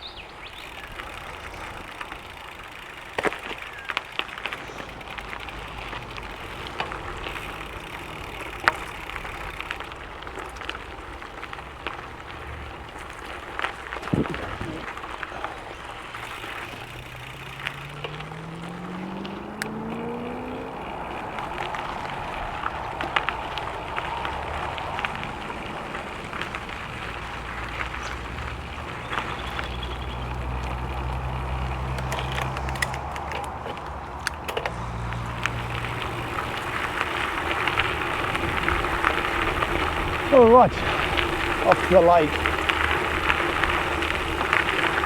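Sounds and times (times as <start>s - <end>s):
bike tyres crunching on gravel: 0.0s - 45.0s
small ticks and rattles: 0.0s - 45.0s
low hum: 34.6s - 41.7s.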